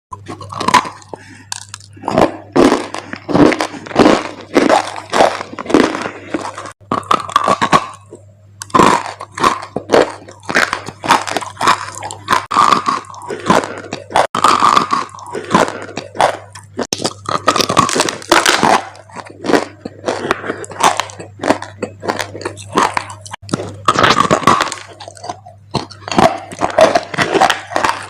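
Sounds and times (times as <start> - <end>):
biting and chewing dry clay: 0.1 - 28.0
steady low hum: 0.1 - 28.0.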